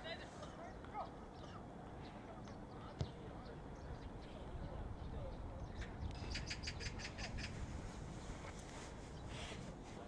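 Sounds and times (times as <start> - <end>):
bird harsh calls: 5.7 - 7.6.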